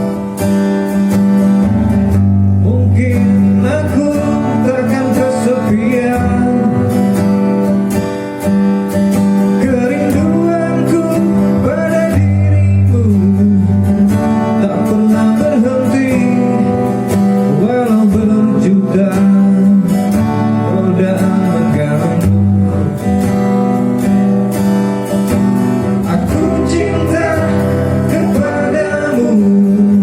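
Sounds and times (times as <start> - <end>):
acoustic guitar strumming: 0.0 - 30.0
person singing: 9.6 - 16.9, 26.0 - 30.0.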